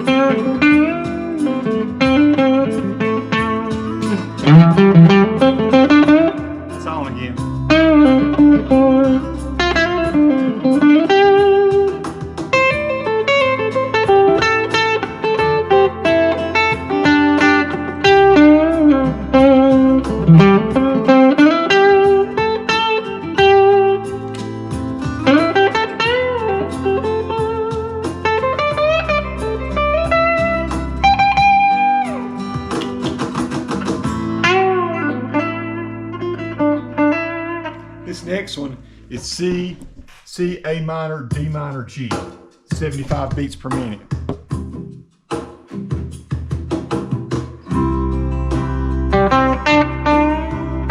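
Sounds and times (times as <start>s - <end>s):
electric guitar lead line: 0.0s - 39.5s, 47.7s - 50.9s
backing track drums and bass: 0.3s - 15.6s, 32.6s - 34.4s, 38.2s - 48.9s.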